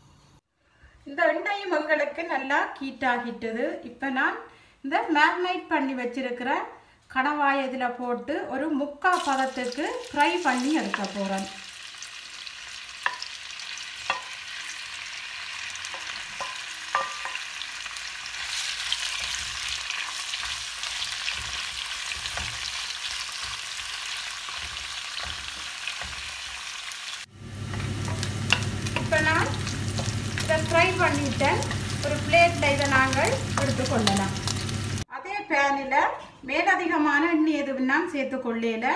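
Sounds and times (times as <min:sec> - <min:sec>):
squid sizzling in a wok: 0:09.1 - 0:35.1
wooden spoon stirring: 0:15.7 - 0:17.5, 0:18.4 - 0:26.8, 0:27.6 - 0:34.6.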